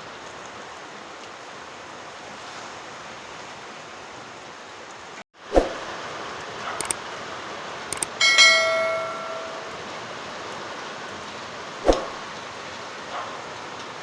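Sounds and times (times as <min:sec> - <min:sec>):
steady rain: 0:00.0 - 0:14.0
small clicks: 0:06.8 - 0:07.0, 0:07.9 - 0:08.2
metal struck and ringing: 0:08.1 - 0:09.8.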